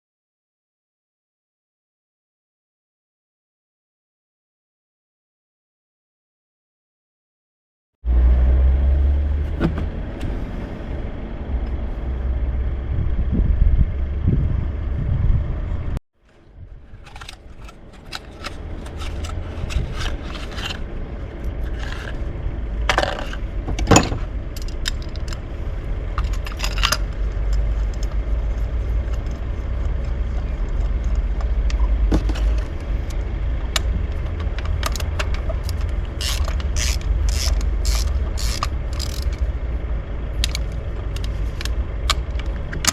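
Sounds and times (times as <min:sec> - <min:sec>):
low rumble: 0:08.0 - 0:42.9
tools clinking and scraping metal: 0:16.9 - 0:22.3, 0:22.9 - 0:25.4, 0:26.1 - 0:33.2, 0:34.1 - 0:39.5.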